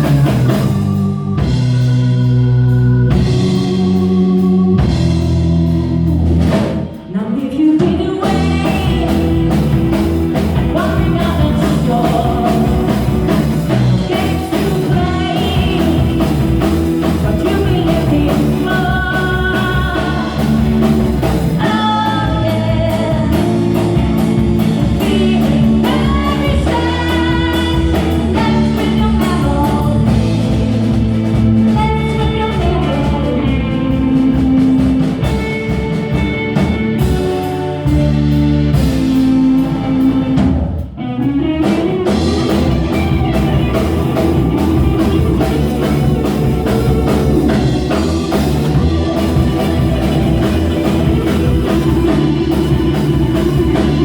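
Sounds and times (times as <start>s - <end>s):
rock song with singing: 0.0s - 54.0s.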